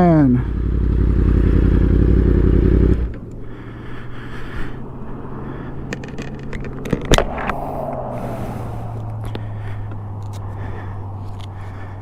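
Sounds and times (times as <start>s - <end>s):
motorcycle engine idling: 0.0s - 4.8s.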